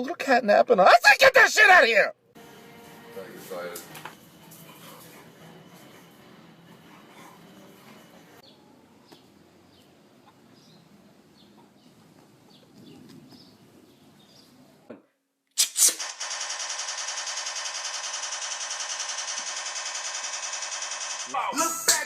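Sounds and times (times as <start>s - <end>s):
loud fast even rattle: 15.6s - 21.3s.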